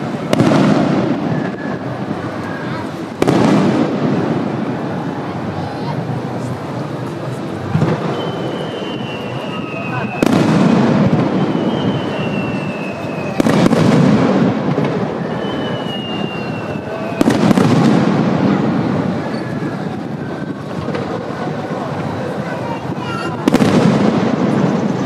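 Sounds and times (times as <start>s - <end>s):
firework bang: 0.0s - 4.9s, 7.7s - 22.0s, 23.0s - 25.0s
firework whistle: 0.2s - 3.9s, 7.7s - 21.4s.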